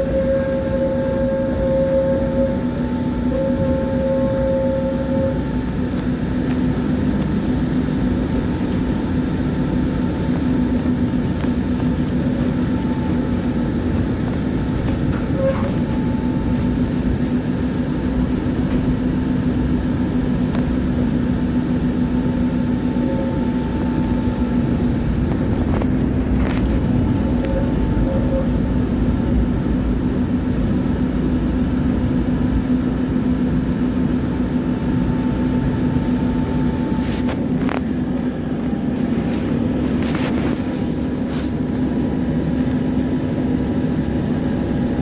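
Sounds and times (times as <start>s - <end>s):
tram rumbling along track: 0.0s - 45.0s.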